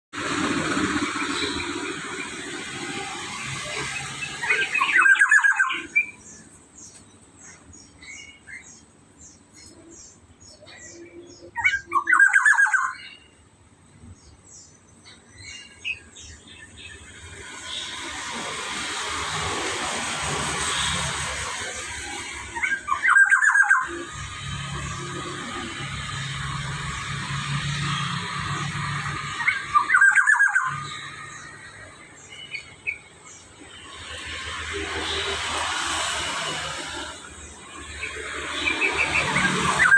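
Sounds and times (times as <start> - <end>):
rushing noise: 0.1 - 7.4, 15.9 - 39.9
bird giving harsh call: 3.8 - 6.5, 10.6 - 13.3, 22.6 - 24.0, 29.4 - 31.6
faint high bird chirps: 4.5 - 13.4, 29.4 - 33.0.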